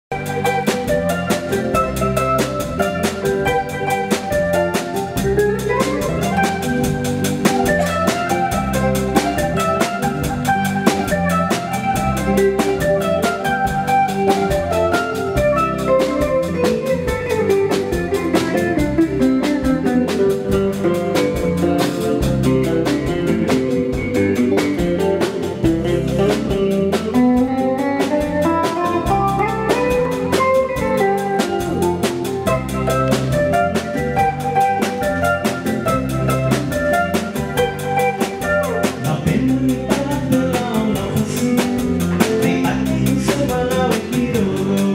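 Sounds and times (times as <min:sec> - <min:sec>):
drums keeping a beat: 0:00.0 - 0:44.9
live band playing: 0:00.0 - 0:44.9.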